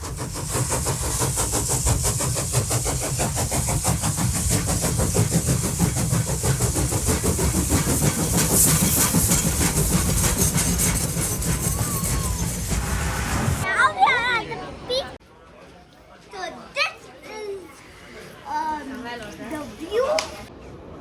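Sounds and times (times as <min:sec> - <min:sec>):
funicular car rumbling and rattling: 0:00.0 - 0:13.7.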